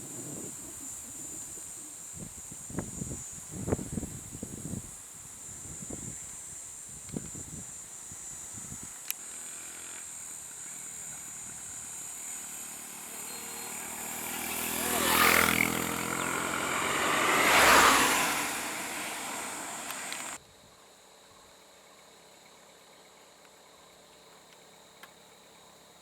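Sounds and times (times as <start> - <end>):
high insect drone: 0.0 - 26.0
motor vehicles passing: 9.2 - 20.4.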